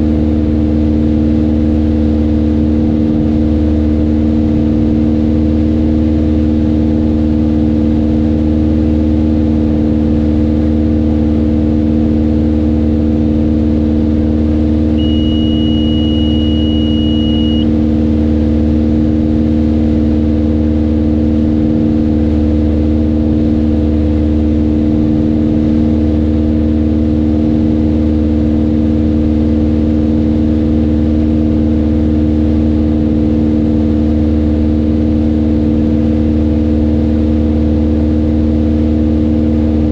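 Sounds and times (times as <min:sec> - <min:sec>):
propeller plane engine drone: 0:00.0 - 0:39.9
high steady beep: 0:15.0 - 0:17.7.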